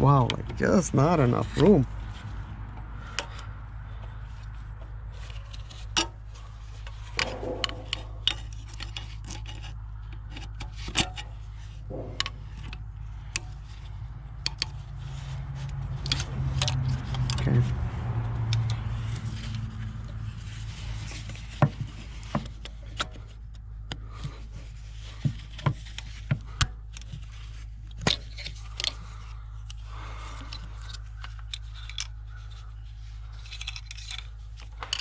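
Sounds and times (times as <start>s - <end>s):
steady low hum: 0.0s - 34.9s
metal scrapes: 5.1s - 23.3s
tools clicking and clinking: 6.8s - 14.9s, 15.7s - 17.5s, 29.6s - 32.7s, 33.3s - 35.0s.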